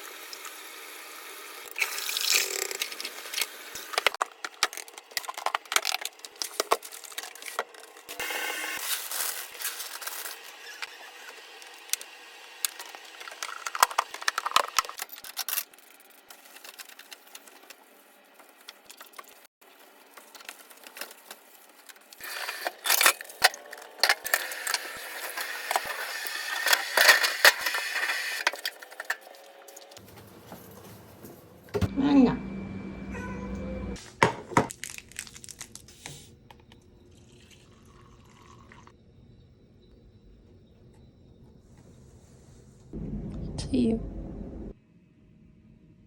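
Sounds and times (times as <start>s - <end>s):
objects handled and rubbed: 2.7s - 11.9s, 12.8s - 31.7s.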